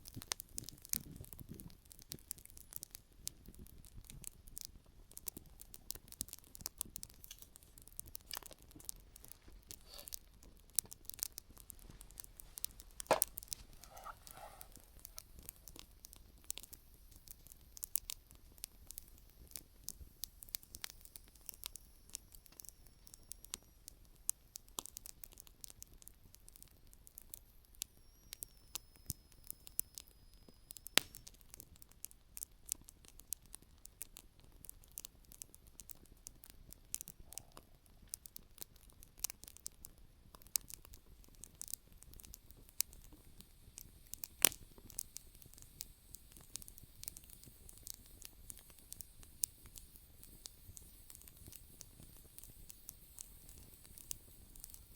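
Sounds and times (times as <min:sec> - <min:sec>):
sharp fire pops: 0:00.0 - 0:21.8, 0:36.8 - 0:54.9
campfire crackling: 0:00.0 - 0:54.9.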